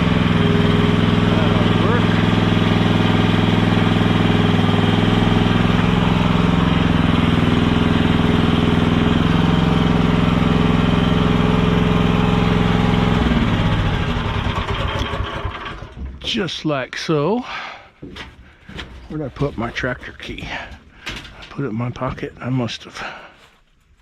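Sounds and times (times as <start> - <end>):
small engine idling: 0.0 - 16.2.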